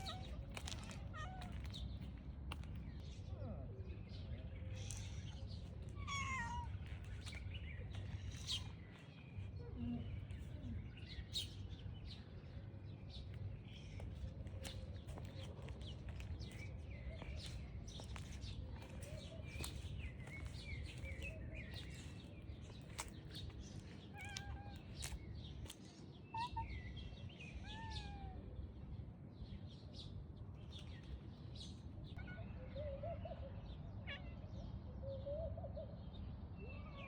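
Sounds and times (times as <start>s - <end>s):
steady low rumble: 0.0s - 25.8s
small birds chirping: 0.0s - 37.0s.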